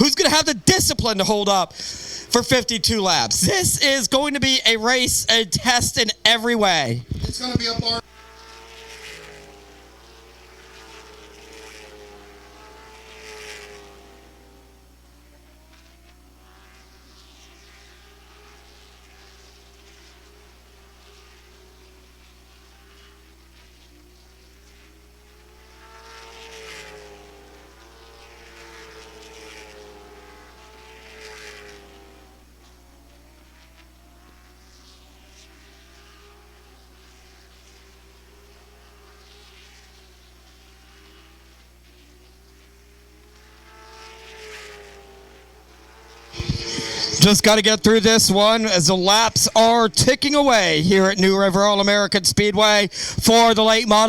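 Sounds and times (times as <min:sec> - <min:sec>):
race car engines droning: 0:00.0 - 0:15.8, 0:43.0 - 0:54.0
distant race car engines droning: 0:00.0 - 0:54.0.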